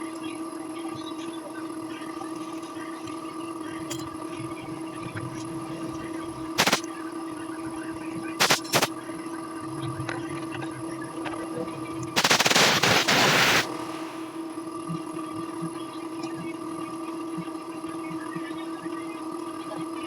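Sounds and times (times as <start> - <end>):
steady hum: 0.0 - 20.0
pressurized jet hissing: 6.6 - 6.8, 8.4 - 8.9, 12.2 - 14.4.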